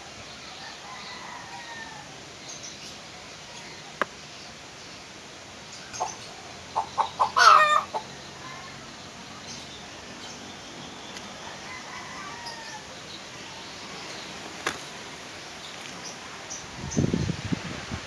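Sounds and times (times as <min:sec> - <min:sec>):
bird clucking like a chicken: 0:06.0 - 0:08.8.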